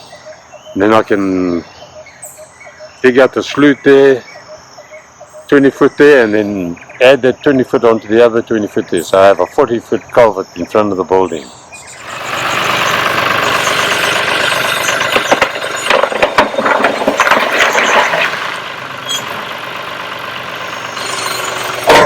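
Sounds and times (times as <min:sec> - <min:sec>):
tractor engine running: 0:11.4 - 0:22.0
clattering knocks: 0:14.6 - 0:19.5, 0:21.4 - 0:22.0.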